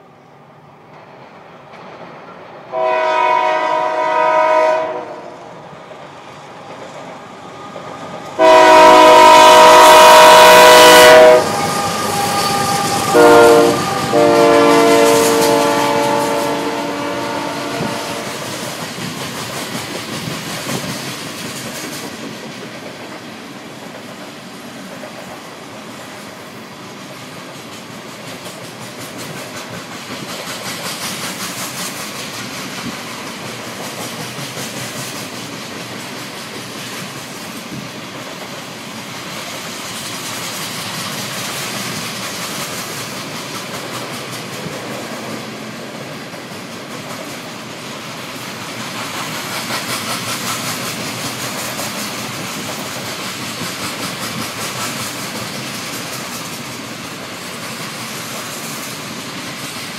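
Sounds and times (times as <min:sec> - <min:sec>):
locomotive air horn blasts: 0:02.7 - 0:05.4, 0:08.4 - 0:18.5.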